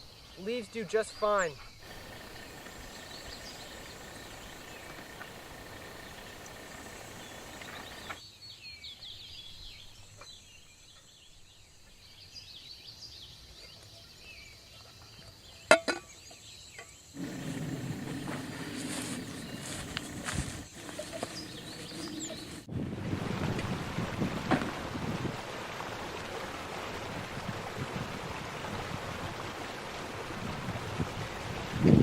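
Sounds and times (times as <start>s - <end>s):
birds chirping: 0.4s - 8.2s, 17.2s - 22.7s
steady hiss: 0.4s - 8.2s, 17.2s - 22.7s.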